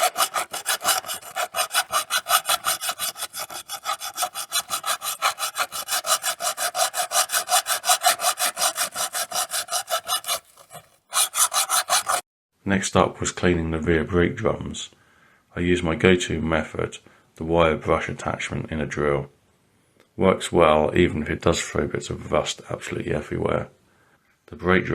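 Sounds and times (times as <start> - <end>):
hand scrubbing on metal: 0.0 - 12.2.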